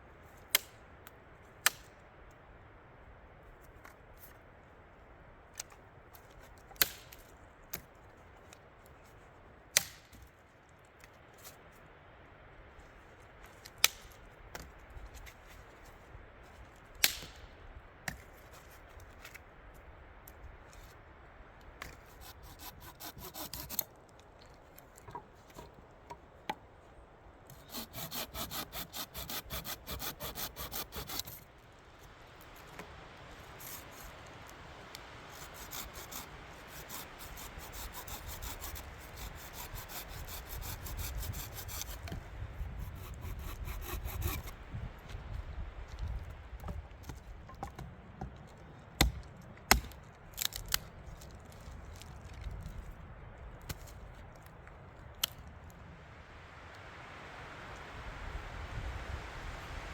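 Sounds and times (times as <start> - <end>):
hand saw cutting wood: 21.9 - 23.9, 27.5 - 31.4, 35.3 - 44.6.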